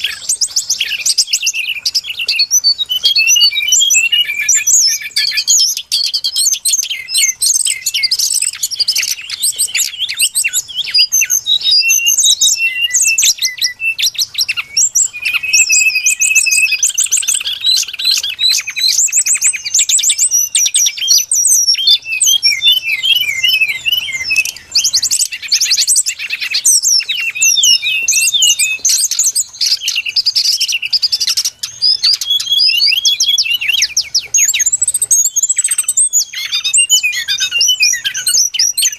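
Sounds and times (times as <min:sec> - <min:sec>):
bird song chirps and whistles: 0:00.0 - 0:38.9.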